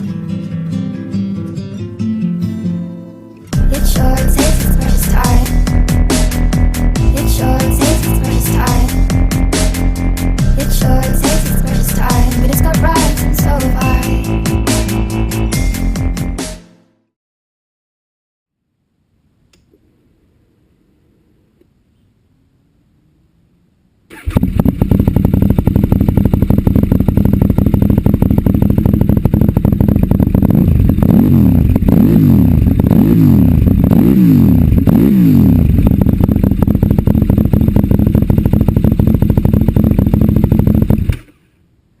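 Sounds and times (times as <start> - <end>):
motorcycle engine idling and revving: 3.6 - 16.2, 24.2 - 41.3.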